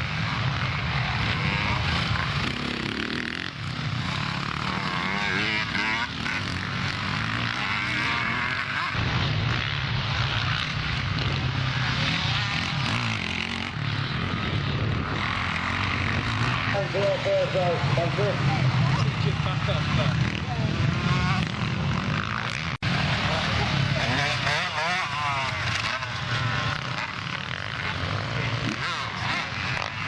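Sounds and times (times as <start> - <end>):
motocross bike engines revving: 0.0 - 30.0.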